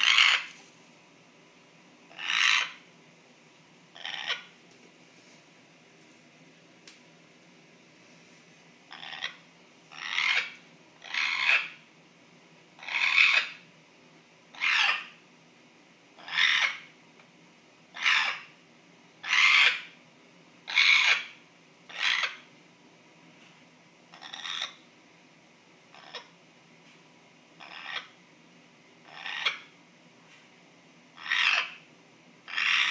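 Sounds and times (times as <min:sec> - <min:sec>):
parrot making harsh hissy call: 0:00.0 - 0:00.5, 0:02.1 - 0:02.8, 0:04.0 - 0:04.5, 0:08.9 - 0:11.8, 0:12.8 - 0:13.6, 0:14.5 - 0:15.2, 0:16.2 - 0:16.9, 0:17.9 - 0:18.5, 0:19.2 - 0:19.9, 0:20.7 - 0:22.4, 0:24.1 - 0:24.8, 0:27.6 - 0:28.1, 0:29.0 - 0:29.6, 0:31.2 - 0:31.8, 0:32.5 - 0:32.9.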